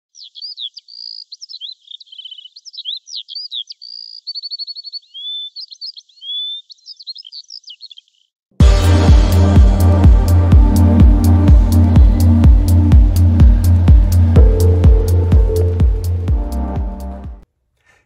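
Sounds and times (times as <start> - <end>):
songbird singing: 0.0 - 8.4.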